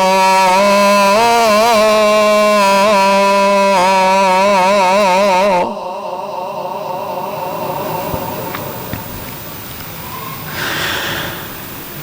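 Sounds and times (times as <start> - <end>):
echo of sung call to prayer: 0.0 - 12.0.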